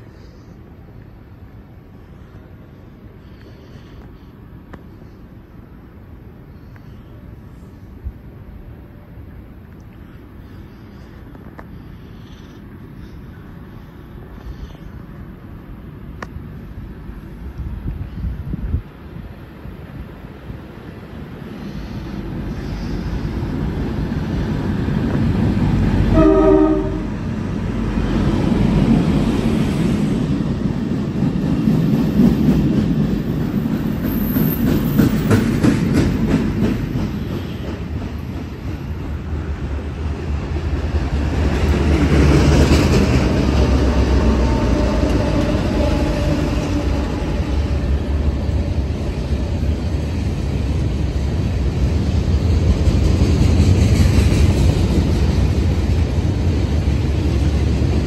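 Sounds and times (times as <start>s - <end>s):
locomotive engine rumble: 0.0s - 58.0s
rail cars rumbling past: 0.0s - 58.0s
locomotive horn blast: 26.0s - 27.2s
steel wheels clacking over rail joints: 30.7s - 58.0s.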